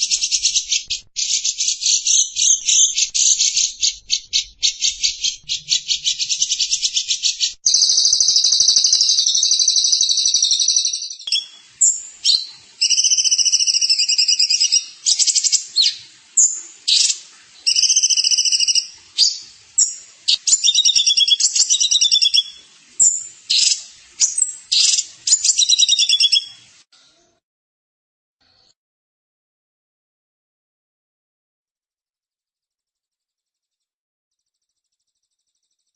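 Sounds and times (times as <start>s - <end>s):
songbird trilling: 0.0s - 26.6s.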